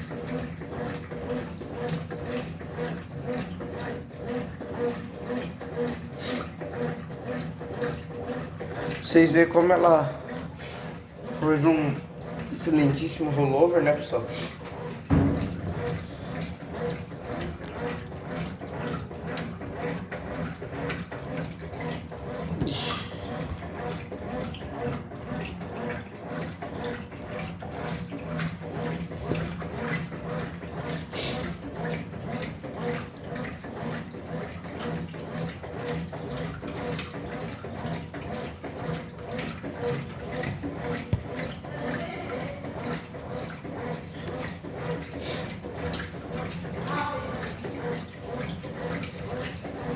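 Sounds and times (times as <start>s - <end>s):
washing machine motor hum: 0.0s - 49.9s
water and clothes swishing: 31.4s - 49.9s.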